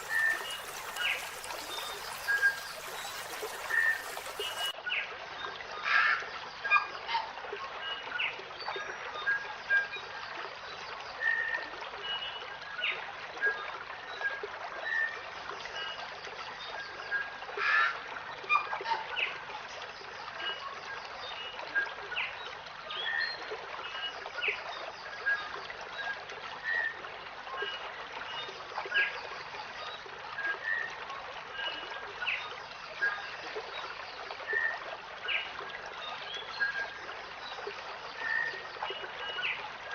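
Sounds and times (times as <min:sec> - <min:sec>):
wild birds chirping: 0:00.0 - 0:04.7.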